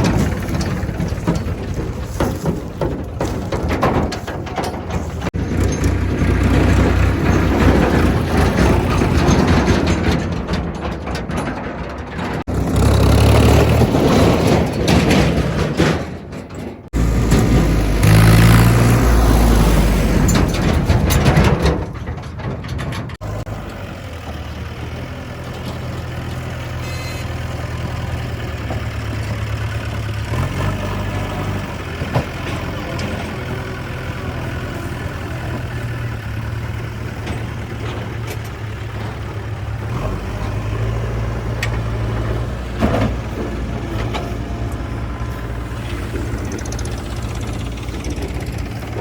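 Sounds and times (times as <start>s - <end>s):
diesel engines of earthmoving machinery: 0.0s - 49.0s.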